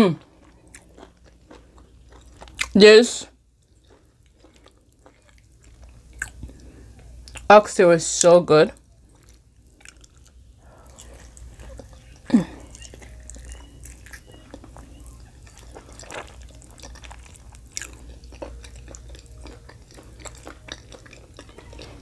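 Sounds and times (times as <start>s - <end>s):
person biting and chewing meat: 3.7s - 6.7s, 9.1s - 22.0s.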